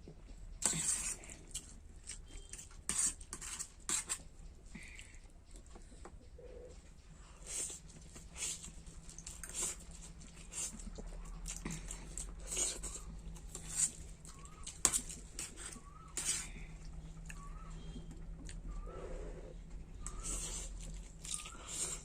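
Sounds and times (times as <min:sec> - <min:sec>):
chewing and slurping noodles: 0:07.4 - 0:18.8, 0:20.0 - 0:22.0.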